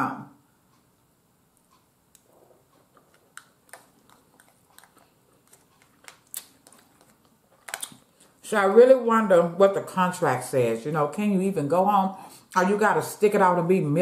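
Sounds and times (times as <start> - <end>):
chewing with mouth clicks: 2.2 - 8.4.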